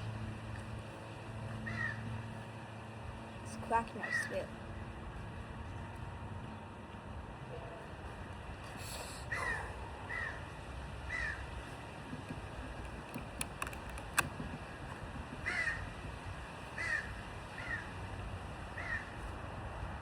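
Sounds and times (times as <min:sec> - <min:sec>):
crow cawing: 0:01.6 - 0:02.0, 0:09.3 - 0:10.5, 0:11.1 - 0:11.5, 0:15.4 - 0:15.9, 0:16.8 - 0:17.9, 0:18.8 - 0:19.1
sharp clicks: 0:12.2 - 0:14.6.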